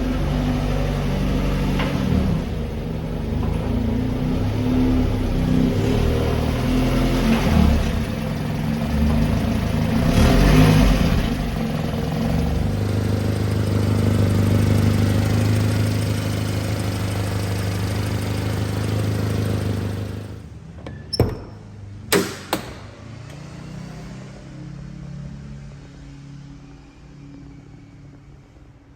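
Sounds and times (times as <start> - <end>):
truck engine running: 0.0 - 20.5
sharp clunks: 20.8 - 23.5.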